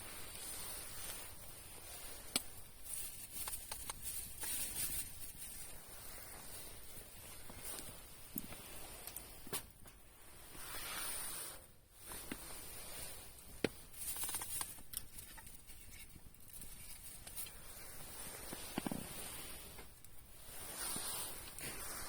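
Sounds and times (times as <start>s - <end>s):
soft hiss of flames: 0.0s - 22.0s
campfire crackling and popping: 0.6s - 4.5s, 7.5s - 10.0s, 13.3s - 20.3s.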